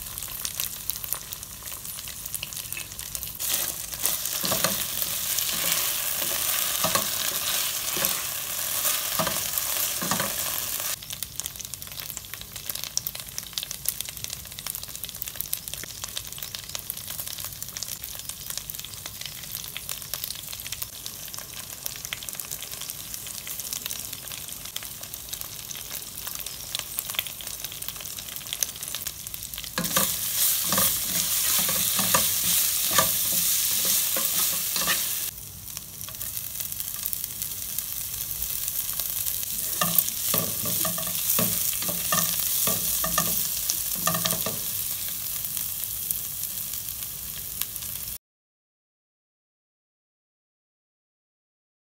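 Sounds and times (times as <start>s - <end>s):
prawns sizzling in a pan: 0.0s - 48.2s
wooden spatula scraping a pan: 3.4s - 11.0s, 29.8s - 35.3s, 39.5s - 44.7s.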